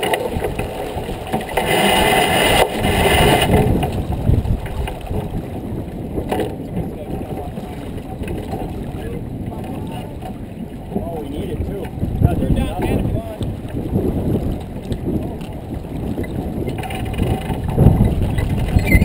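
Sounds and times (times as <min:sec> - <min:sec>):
water rushing past boat: 0:00.0 - 0:19.0
wind rushing: 0:01.9 - 0:06.2.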